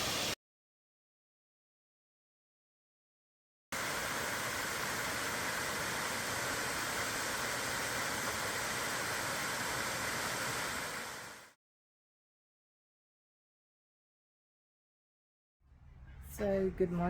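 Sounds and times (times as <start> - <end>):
waterfall roaring: 3.8 - 11.4.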